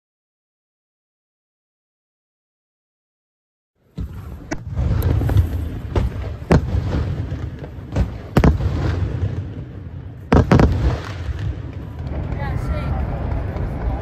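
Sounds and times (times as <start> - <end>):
firework shells bursting: 3.9 - 12.5.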